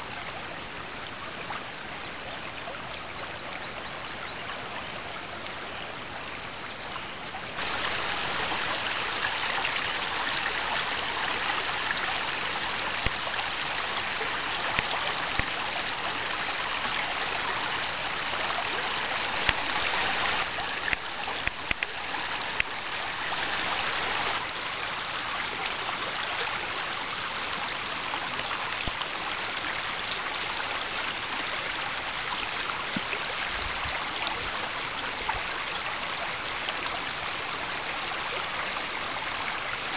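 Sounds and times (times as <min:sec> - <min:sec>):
water rushing over waterfall: 0:07.6 - 0:24.8.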